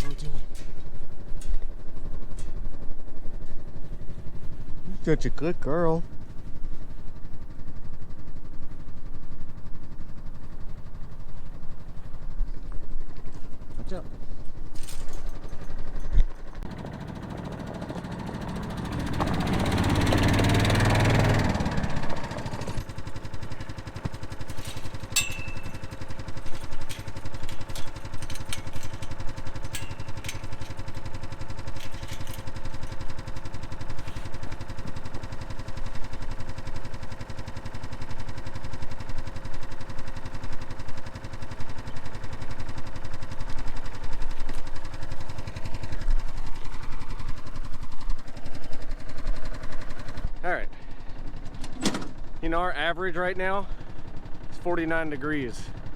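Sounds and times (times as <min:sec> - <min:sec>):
light clicks and rattles: 0:00.0 - 0:05.0, 0:06.0 - 0:50.3
small engine idling: 0:00.0 - 0:55.9.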